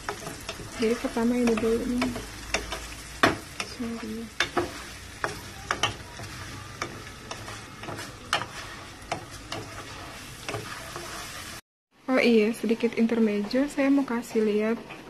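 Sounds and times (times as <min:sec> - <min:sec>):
wooden spoon scraping pot: 0:00.0 - 0:11.6
vermicelli sizzling in oil: 0:00.0 - 0:15.0.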